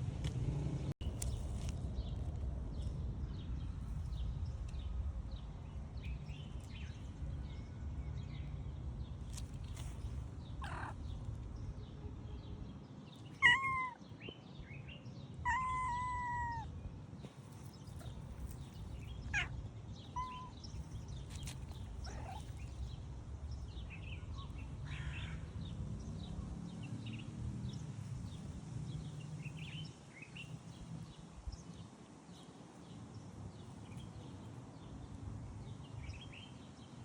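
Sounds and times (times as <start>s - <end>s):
steady low rumble: 0.0s - 12.7s, 15.6s - 26.6s
cat meowing: 13.4s - 14.0s, 15.4s - 16.7s, 19.2s - 20.6s.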